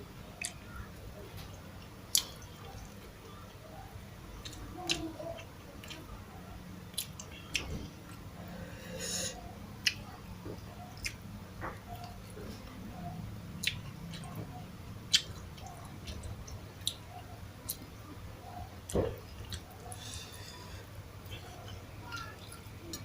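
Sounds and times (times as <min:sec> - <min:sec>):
chewing and mouth smacks: 0:01.4 - 0:03.6, 0:06.9 - 0:08.2, 0:09.8 - 0:18.1, 0:18.8 - 0:20.1.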